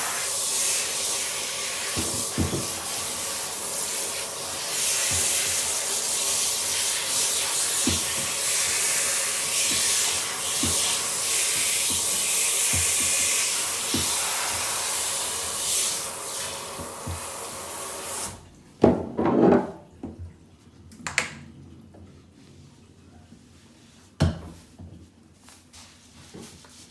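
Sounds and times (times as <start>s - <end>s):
water spraying: 0.0s - 18.4s.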